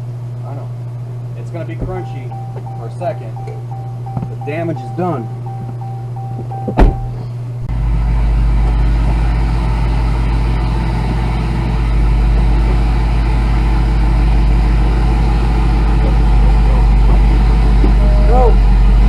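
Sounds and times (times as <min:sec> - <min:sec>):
car engine rumbling under load: 0:00.0 - 0:19.0
steady chime tone: 0:02.0 - 0:07.3
sharp thump: 0:06.7 - 0:07.2.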